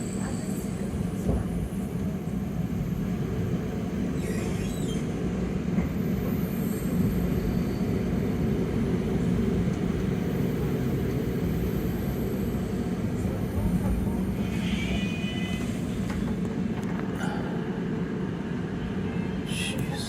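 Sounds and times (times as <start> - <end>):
faint high squeal: 4.1 - 5.1, 6.5 - 8.1
train rolling over track: 5.1 - 17.2.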